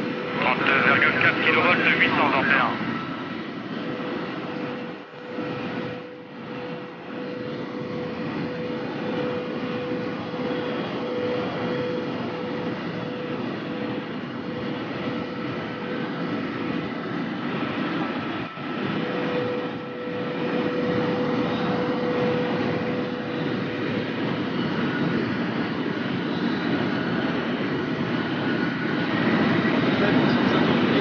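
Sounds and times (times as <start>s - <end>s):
high-speed train rushing: 0.0s - 16.2s
faint whining tones: 0.0s - 31.0s.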